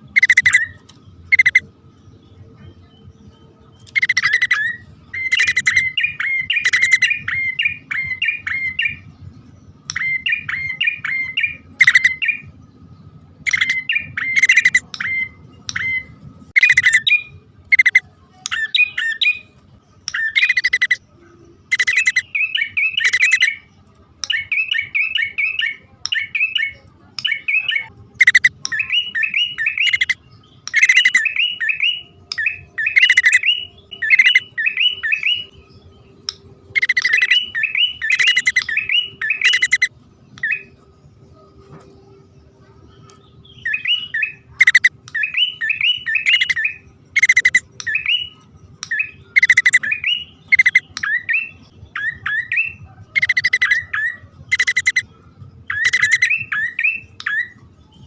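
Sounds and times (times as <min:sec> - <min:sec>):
birds chirping harshly: 0:00.0 - 0:58.0.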